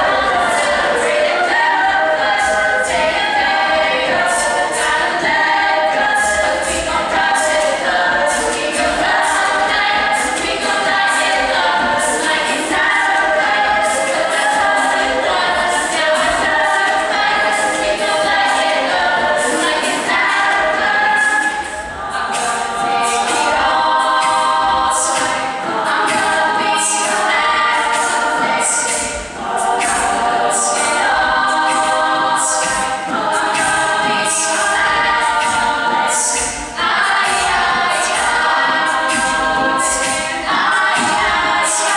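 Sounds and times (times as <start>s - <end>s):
a cappella group singing harmony: 0.0s - 41.9s
vocal percussion beat: 0.0s - 41.9s.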